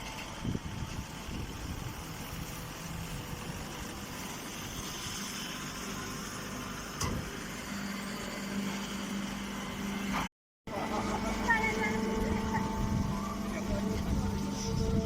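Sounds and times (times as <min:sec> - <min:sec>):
baler mechanical noise: 0:00.0 - 0:15.0
steady low hum: 0:10.7 - 0:15.0.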